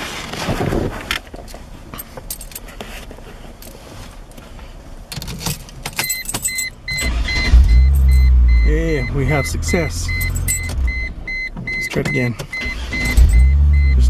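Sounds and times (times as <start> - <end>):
keys jangling: 1.9 - 2.7, 5.1 - 6.7, 10.1 - 10.7
ignition key clicks and rattles: 5.1 - 8.3, 10.1 - 13.5
car warning chime beeping: 6.0 - 14.0.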